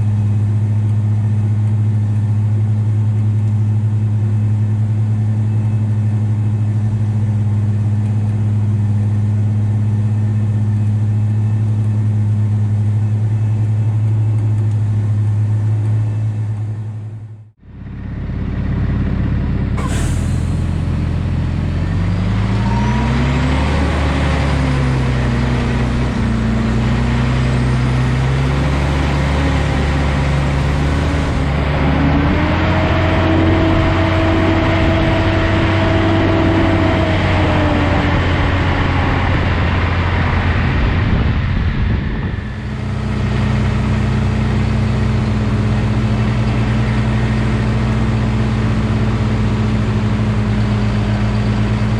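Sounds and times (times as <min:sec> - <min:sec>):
tractor diesel engine revving: 0:00.0 - 0:51.9
air hiss: 0:19.8 - 0:20.8.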